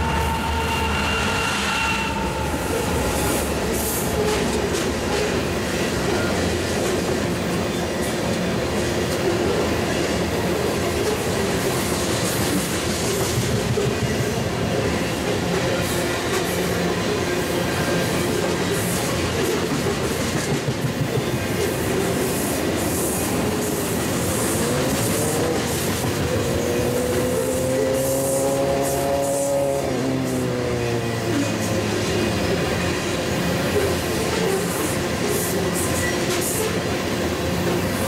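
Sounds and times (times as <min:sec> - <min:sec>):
wheel squeal: 0:00.0 - 0:03.4
train wheels rumbling and clattering: 0:00.0 - 0:38.0.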